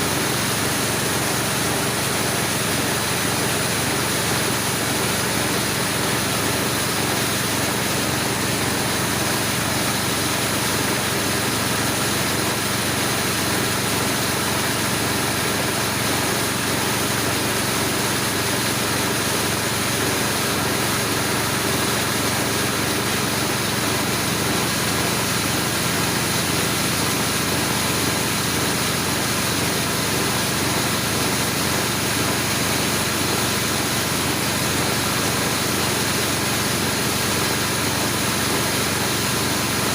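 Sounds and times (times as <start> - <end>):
grinding mill humming: 0.0 - 39.9.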